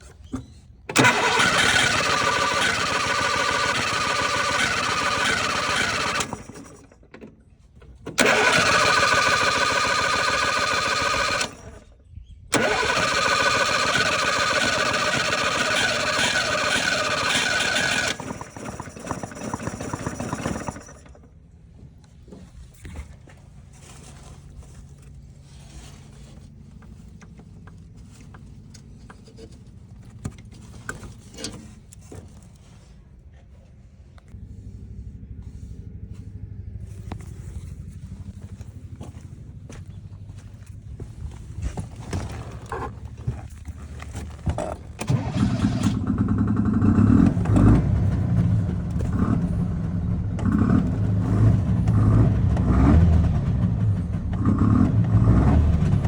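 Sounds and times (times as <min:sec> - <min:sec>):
small car engine running loudly: 0:00.9 - 0:07.0, 0:08.2 - 0:11.9, 0:12.5 - 0:21.3, 0:34.4 - 0:56.0
quiet low hum: 0:21.6 - 0:45.0.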